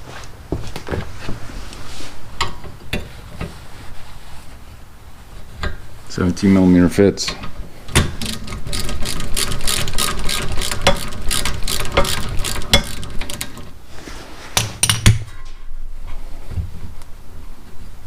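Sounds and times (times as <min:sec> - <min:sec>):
ratchet clicking: 0:07.9 - 0:13.7.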